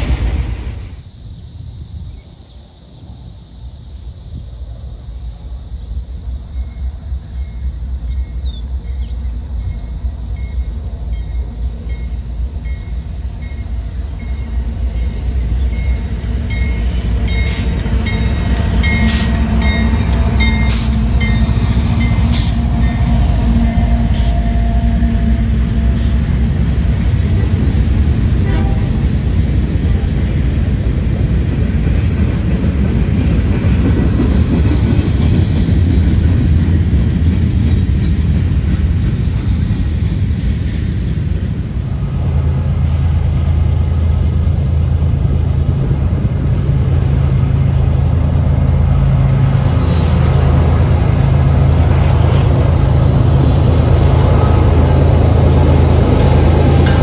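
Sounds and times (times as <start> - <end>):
train rumbling past: 0.0 - 57.0
wheels clacking over rail joints: 12.7 - 41.6, 50.5 - 57.0.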